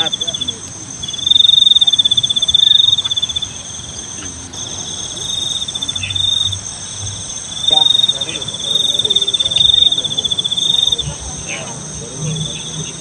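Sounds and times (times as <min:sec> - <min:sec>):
cricket trilling: 0:00.0 - 0:13.0.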